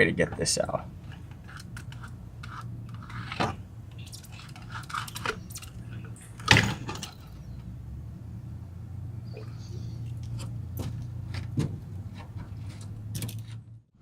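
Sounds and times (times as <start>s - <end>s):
steady low hum: 0.0s - 14.0s
clicks and scrapes of handling: 1.0s - 7.5s.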